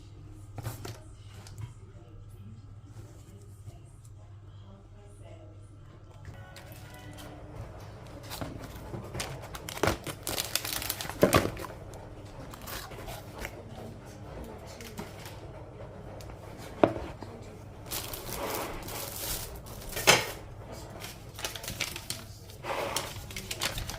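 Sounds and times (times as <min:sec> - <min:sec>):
crinkling handling noise: 0:06.3 - 0:23.9.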